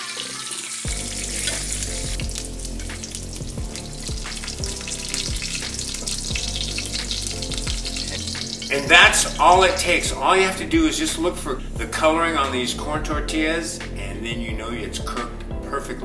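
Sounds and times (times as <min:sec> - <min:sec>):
tongs turning food in pan: 0:00.0 - 0:10.0
fish tacos sizzling in oil: 0:00.0 - 0:10.1
background music with low bass: 0:00.8 - 0:16.0.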